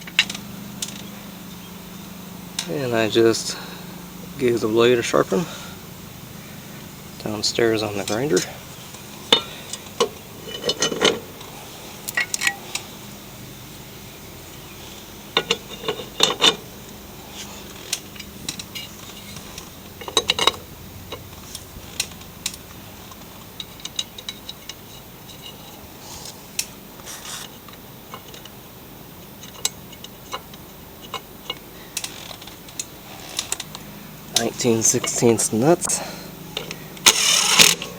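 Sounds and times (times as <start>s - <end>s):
metal hand tools clinking: 9.2s - 12.8s, 29.4s - 37.9s.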